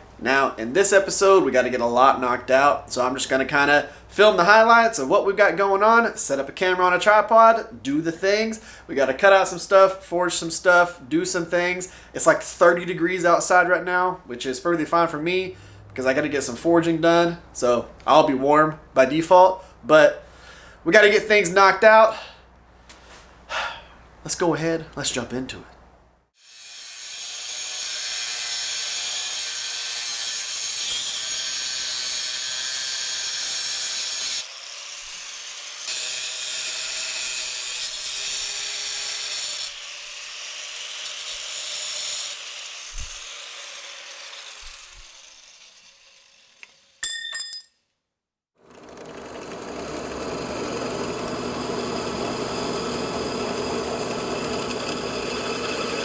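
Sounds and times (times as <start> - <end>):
power tool grinding steel: 26.4 - 47.0, 48.7 - 56.0.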